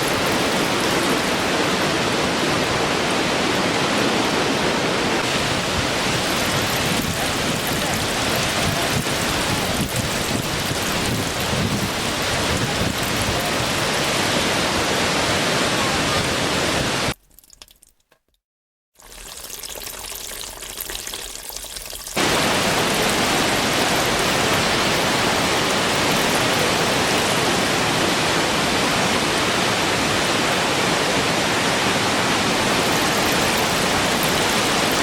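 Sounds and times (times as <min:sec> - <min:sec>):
waterfall: 0:00.0 - 0:17.2, 0:22.2 - 0:35.0.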